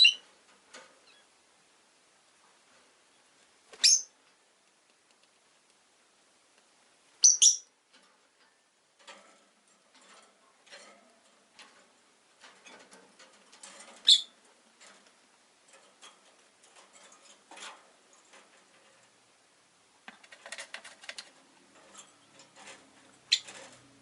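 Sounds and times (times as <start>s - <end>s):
lovebirds chirping: 0.0s - 0.2s, 3.1s - 4.2s, 7.2s - 7.7s, 14.0s - 14.4s, 23.2s - 23.6s
soft clicks and rustles: 0.2s - 1.3s, 2.0s - 7.0s, 7.7s - 24.0s.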